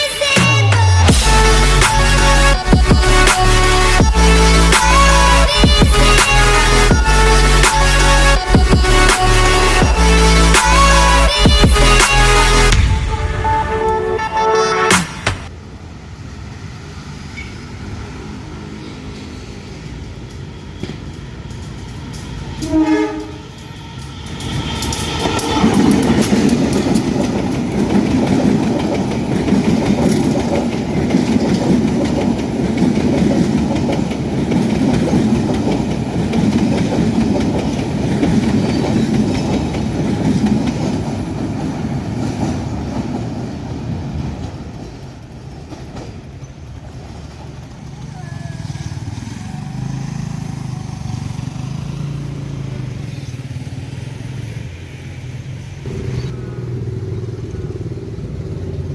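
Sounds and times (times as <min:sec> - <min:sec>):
train passing with rumble: 0:00.0 - 0:58.9
locomotive horn: 0:01.1 - 0:15.5, 0:22.6 - 0:23.6
wheel clatter over rail joints: 0:23.3 - 0:48.1.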